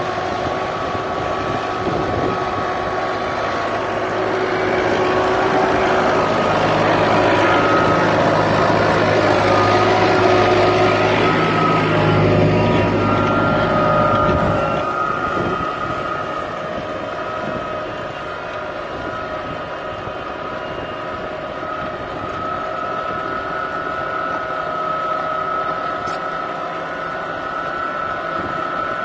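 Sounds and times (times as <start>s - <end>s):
steady high whine: 0.0s - 29.0s
tractor engine under load: 0.0s - 29.0s.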